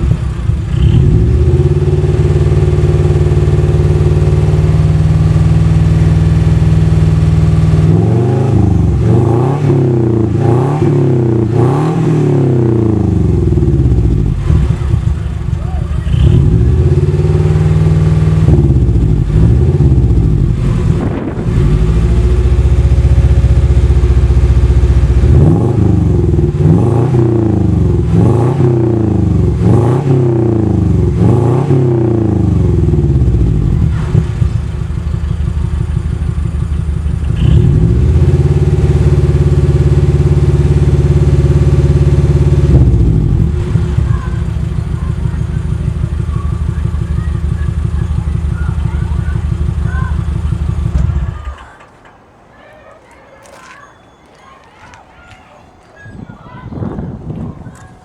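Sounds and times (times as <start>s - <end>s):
car engine revving: 0.0s - 52.0s.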